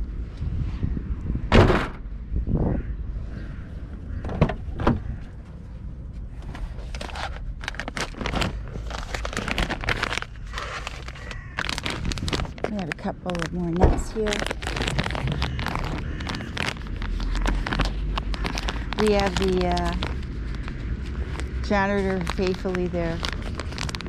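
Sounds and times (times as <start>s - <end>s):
street traffic rumble: 0.0s - 24.0s
handling knocks and crackling: 6.4s - 24.0s.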